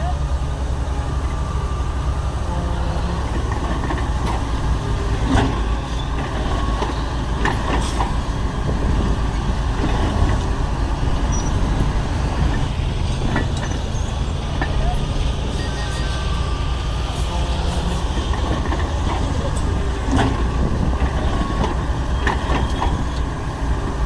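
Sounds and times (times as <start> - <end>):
diesel engine running: 0.0 - 24.0
metal clanks: 9.0 - 15.6.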